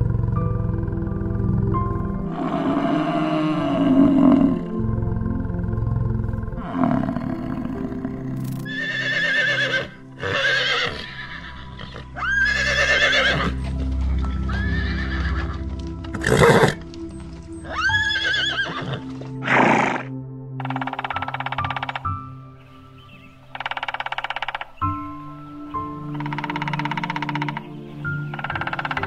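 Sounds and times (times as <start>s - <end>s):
background music: 0.0s - 29.0s
horse whinnying: 8.7s - 13.6s, 14.5s - 16.8s, 17.6s - 20.1s.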